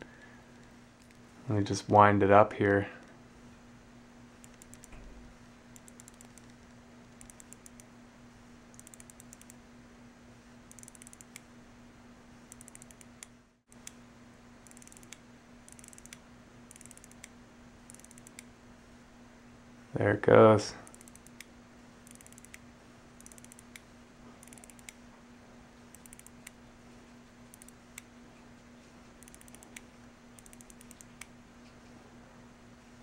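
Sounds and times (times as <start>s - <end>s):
watch crown ratchet clicks: 4.4s - 4.9s, 5.8s - 7.9s, 8.8s - 9.6s, 10.7s - 11.4s, 12.5s - 13.9s, 14.6s - 17.3s, 17.9s - 18.4s, 20.8s - 22.6s, 23.2s - 23.8s, 24.4s - 25.0s, 25.9s - 26.5s, 27.5s - 27.8s, 29.2s - 29.8s, 30.4s - 31.3s.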